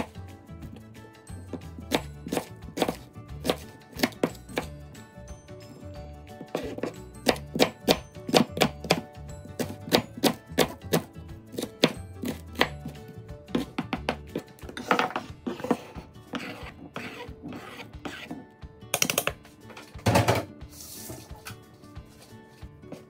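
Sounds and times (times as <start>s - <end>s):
background music: 0.0s - 23.0s
knife chopping on cutting board: 1.5s - 4.7s, 6.4s - 18.4s.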